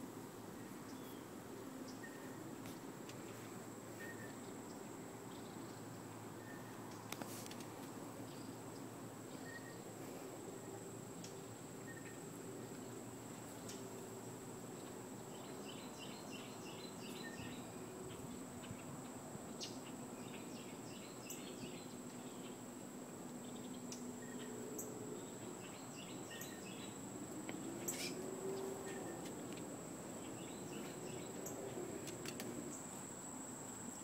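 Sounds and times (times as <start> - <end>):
songbird chirping: 0.5 - 34.0
high-pitched insect trill: 23.4 - 34.0.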